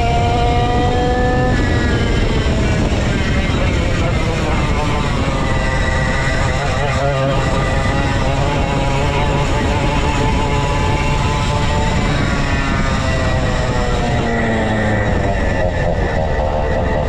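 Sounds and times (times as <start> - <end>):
go-kart engine running: 0.0 - 17.0.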